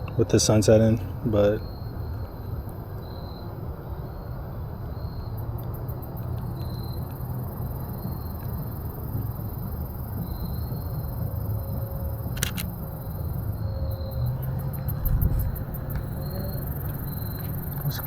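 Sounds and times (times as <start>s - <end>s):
insects trilling: 0.2s - 18.0s
rapid high ticks: 12.2s - 13.2s, 13.9s - 18.0s
camera shutter double click: 12.4s - 12.8s.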